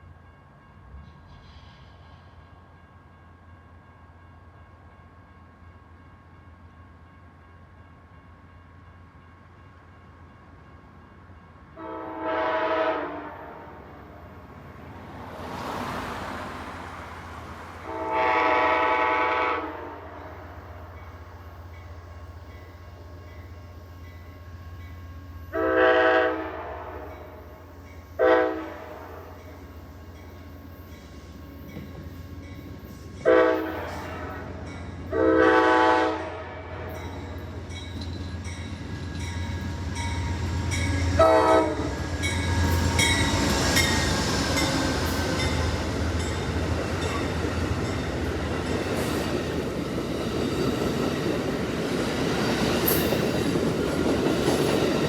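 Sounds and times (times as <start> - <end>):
train horn blasts: 11.8 - 13.9, 17.8 - 20.6, 25.5 - 29.4, 33.2 - 37.4, 40.6 - 43.4
train wheels rumbling on rails: 13.9 - 55.0.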